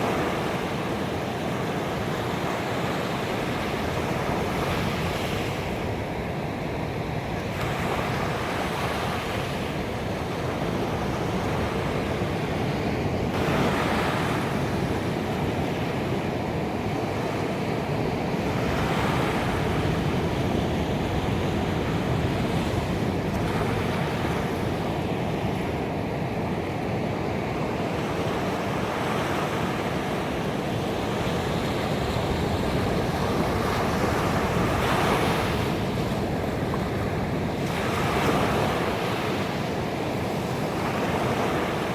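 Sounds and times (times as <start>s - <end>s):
ocean waves breaking on beach: 0.0s - 41.9s.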